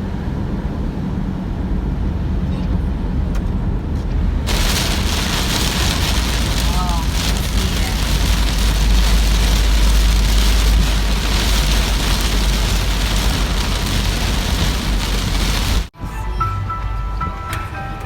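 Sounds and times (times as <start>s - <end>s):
deep low rumble: 4.5s - 15.9s
heavy rain falling: 4.5s - 15.9s.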